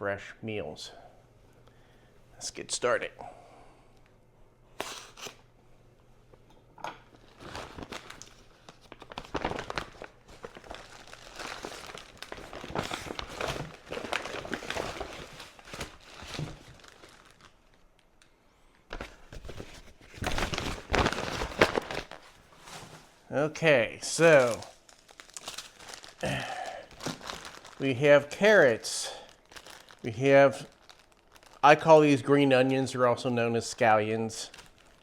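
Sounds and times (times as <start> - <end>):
packaging crinkling and rustling: 7.0 - 18.3, 18.9 - 23.2, 24.1 - 33.0, 33.6 - 35.0.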